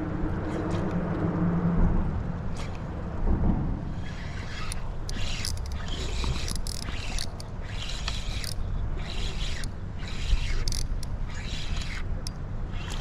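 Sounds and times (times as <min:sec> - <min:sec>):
wind rumble on microphone: 0:00.0 - 0:13.0
fishing reel whirring: 0:03.9 - 0:13.0.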